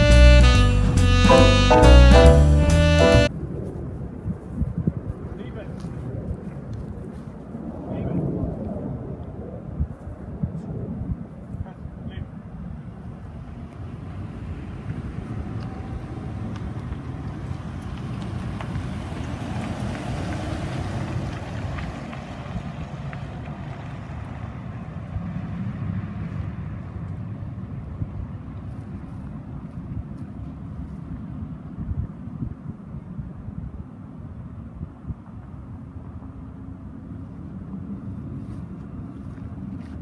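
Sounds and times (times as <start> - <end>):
wind buffeting microphone: 3.3 - 22.8.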